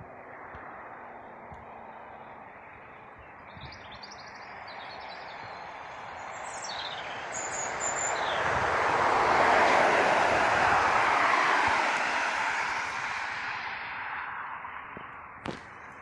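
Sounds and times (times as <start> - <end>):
jet aircraft engines: 0.0 - 16.0
small birds chirping: 1.6 - 8.5.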